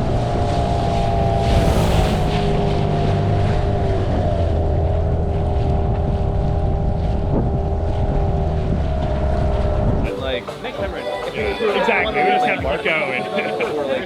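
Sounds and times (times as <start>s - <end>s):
wind buffeting microphone: 0.0s - 10.1s
outboard motor running: 3.2s - 10.0s.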